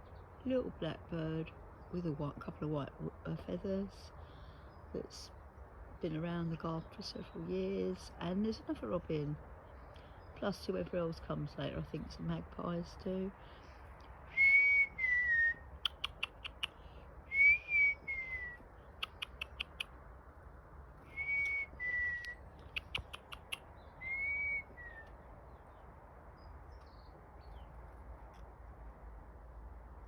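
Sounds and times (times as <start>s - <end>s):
sharp ticks: 15.8s - 16.8s, 19.0s - 19.9s, 22.6s - 23.7s
two-note whistled bird call: 21.1s - 22.4s.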